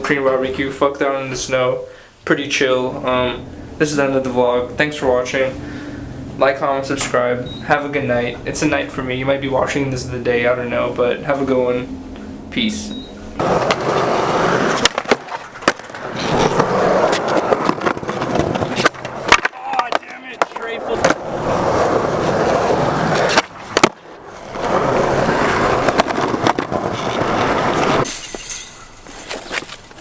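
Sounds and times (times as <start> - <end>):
skateboard wheels rolling on pavement: 0.0 - 11.9, 12.6 - 30.0
skateboard clacks: 13.4 - 28.1.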